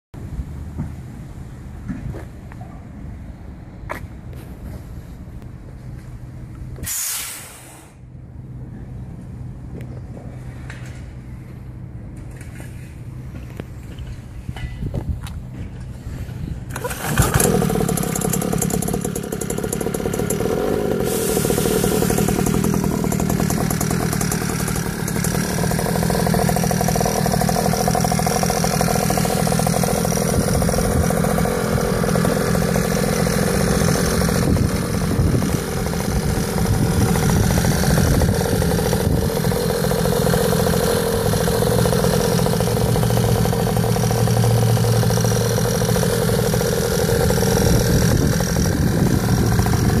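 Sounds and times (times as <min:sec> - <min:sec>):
dirt bike engine idling: 0:15.4 - 0:50.0.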